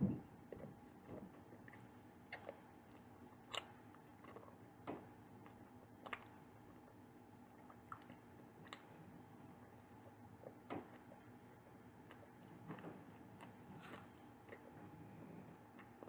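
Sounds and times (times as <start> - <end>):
quiet chewing: 0.1 - 16.0.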